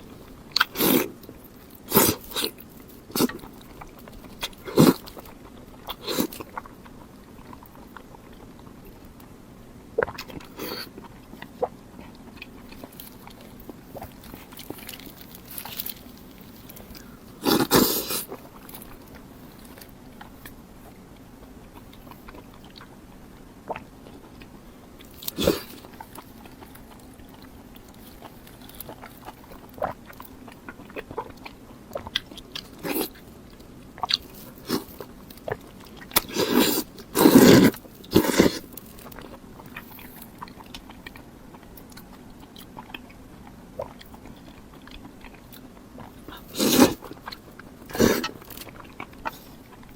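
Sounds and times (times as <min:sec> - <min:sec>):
person biting and chewing food: 0:00.0 - 0:08.9, 0:10.0 - 0:49.9.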